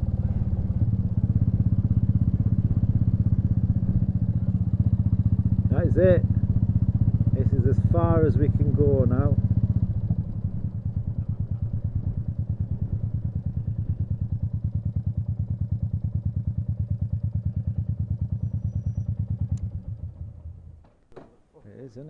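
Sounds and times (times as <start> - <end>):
motorcycle engine idling: 0.0 - 21.5.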